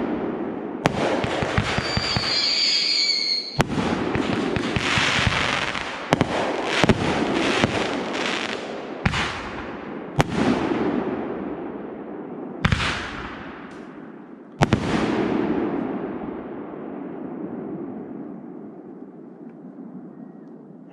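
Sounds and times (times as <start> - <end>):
fireworks booming: 0.0 - 18.4
fireworks crackle: 1.1 - 8.6.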